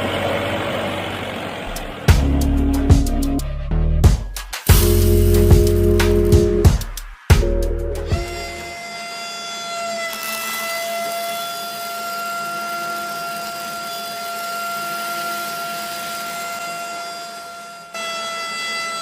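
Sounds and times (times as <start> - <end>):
electric motor whining: 7.9 - 19.0.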